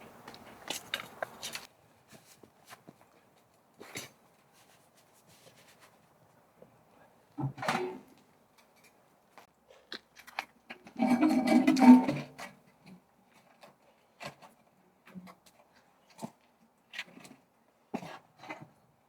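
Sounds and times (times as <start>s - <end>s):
objects clattering: 10.9s - 12.5s.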